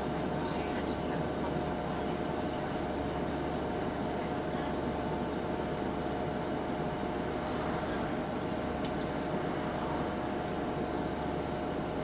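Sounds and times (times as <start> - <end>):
bus engine and road noise: 0.0 - 12.0.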